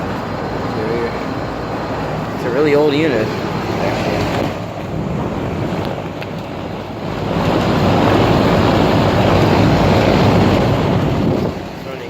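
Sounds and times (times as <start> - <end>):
condenser fan air rush: 0.0 - 12.0.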